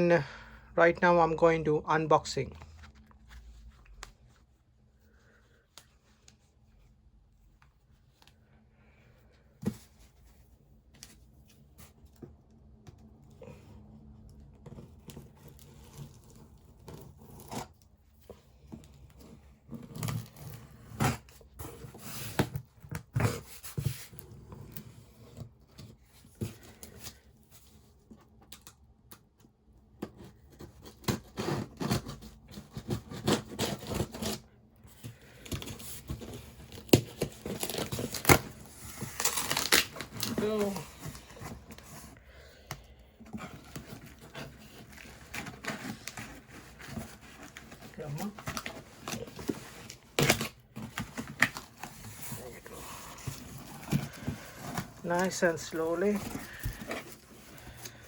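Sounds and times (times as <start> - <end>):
box scratched and rustled: 14.6 - 27.9, 30.1 - 42.3, 43.0 - 58.0
packaging seal tearing: 36.7 - 40.4.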